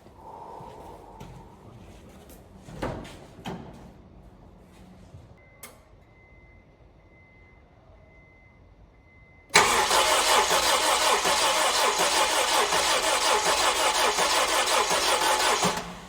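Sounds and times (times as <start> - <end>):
faint steady high tone: 5.4 - 9.5.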